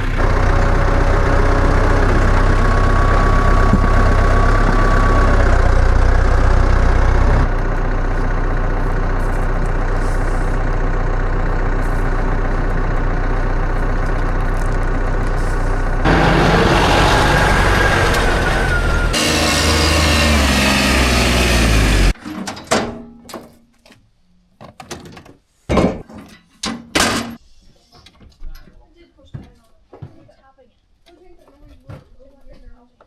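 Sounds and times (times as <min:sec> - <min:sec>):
farm machinery engine running: 0:00.0 - 0:22.2.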